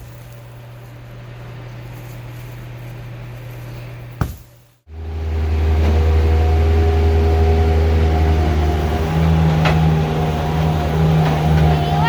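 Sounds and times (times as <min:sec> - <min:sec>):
diesel engine running: 0:04.9 - 0:12.0.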